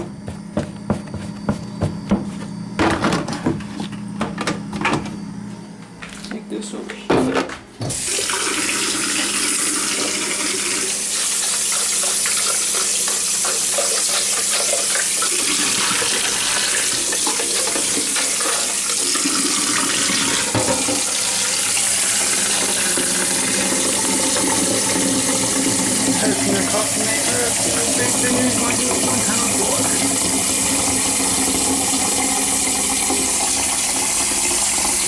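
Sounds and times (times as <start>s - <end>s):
tap water running into a sink: 7.9s - 35.0s.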